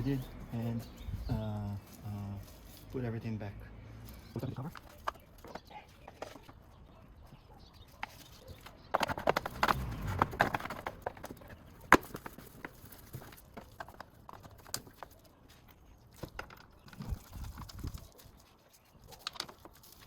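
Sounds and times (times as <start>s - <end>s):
plastic parts knocking and rattling: 8.0s - 15.2s, 16.0s - 18.1s, 19.1s - 20.0s.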